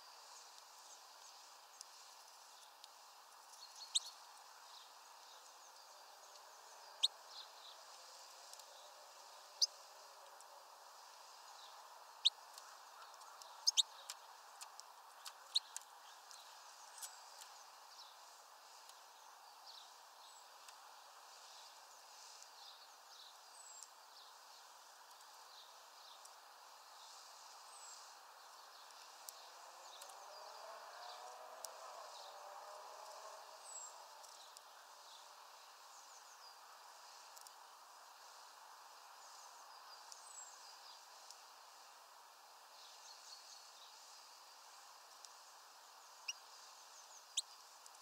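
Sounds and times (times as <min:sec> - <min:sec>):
low background hiss: 0:00.0 - 0:48.0
high bird chirps: 0:13.2 - 0:14.1.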